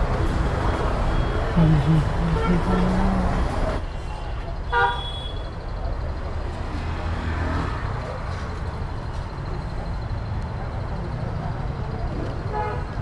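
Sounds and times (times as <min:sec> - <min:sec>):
vehicle engines rumbling: 0:00.0 - 0:13.0
car horn toot: 0:04.7 - 0:05.5.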